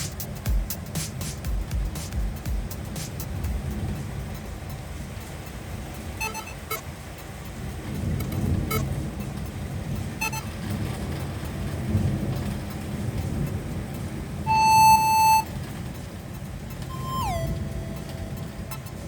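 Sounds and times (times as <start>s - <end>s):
road traffic rumble: 0.0s - 19.0s
loud beep-like tone: 6.2s - 6.8s, 10.2s - 10.5s, 14.5s - 15.5s, 16.9s - 19.0s
tone sliding down in pitch: 6.2s - 6.8s, 14.5s - 15.5s, 16.9s - 19.0s.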